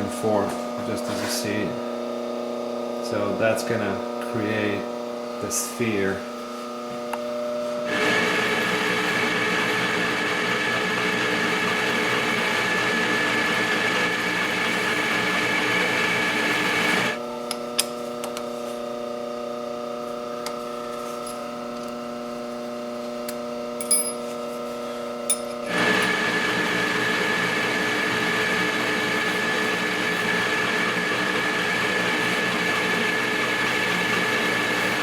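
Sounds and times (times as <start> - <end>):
metal lathe whining: 7.9 - 17.2.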